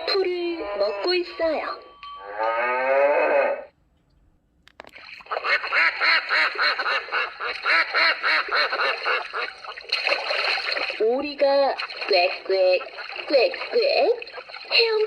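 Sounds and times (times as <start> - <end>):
ducks quacking: 5.2 - 10.8, 11.7 - 15.0.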